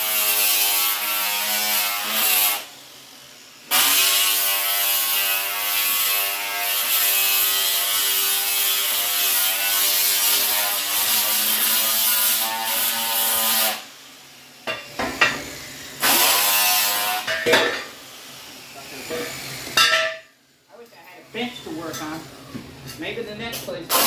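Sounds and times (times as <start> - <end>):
angle grinder grinding steel: 0.0 - 2.8, 3.7 - 20.0.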